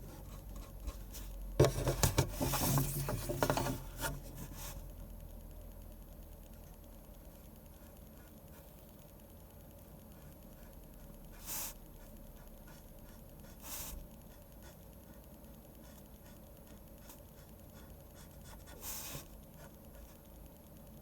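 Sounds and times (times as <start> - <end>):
pen scratching on paper: 10.1 - 20.2.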